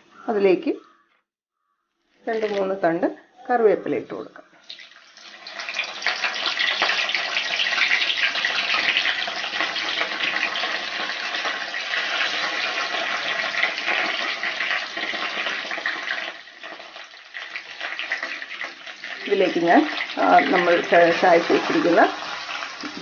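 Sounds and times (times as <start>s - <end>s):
leaves sizzling in hot oil: 4.6s - 23.0s.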